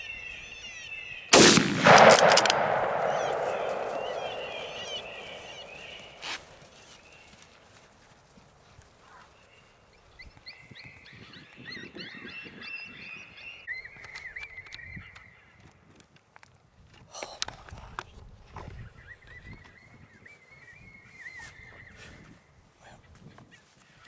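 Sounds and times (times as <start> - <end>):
sharp click: 1.4 - 6.4
rifle shot echo: 1.4 - 6.5.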